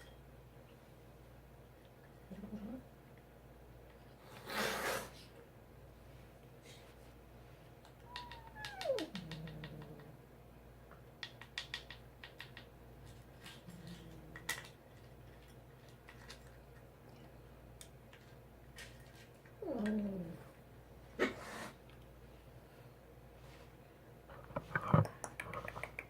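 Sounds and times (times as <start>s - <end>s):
cat meowing: 8.0s - 10.0s.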